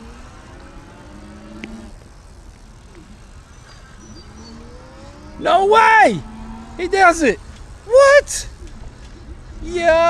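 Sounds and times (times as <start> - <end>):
electric motor whining: 0.0 - 7.8
steady background noise: 0.0 - 10.0.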